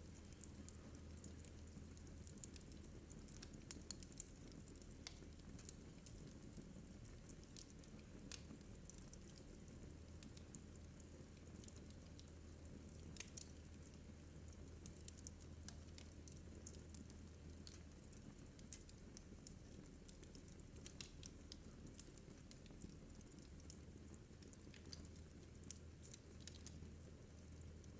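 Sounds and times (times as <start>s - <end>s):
low steady hum: 0.0s - 3.6s
wood fire crackling: 0.0s - 27.9s.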